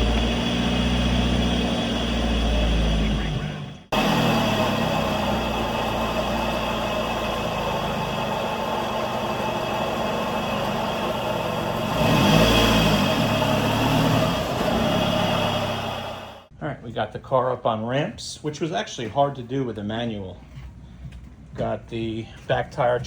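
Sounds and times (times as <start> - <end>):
car engine idling: 0.0 - 16.5.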